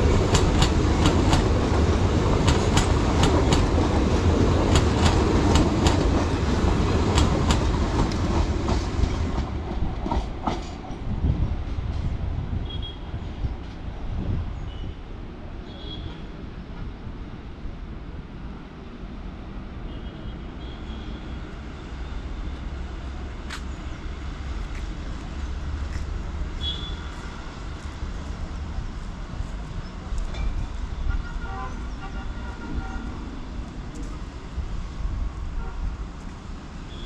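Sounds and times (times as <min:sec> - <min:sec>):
train rumbling: 0:00.0 - 0:20.6, 0:21.2 - 0:37.0.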